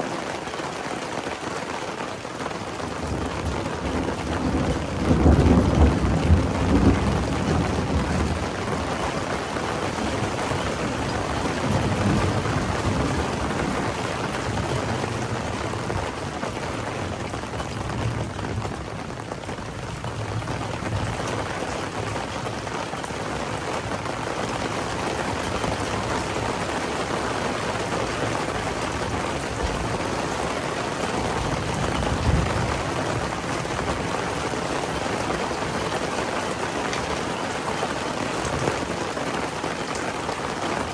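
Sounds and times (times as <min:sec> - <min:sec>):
steady rain falling: 0:00.0 - 0:40.9
thunder rumble: 0:02.8 - 0:22.7, 0:23.5 - 0:36.0.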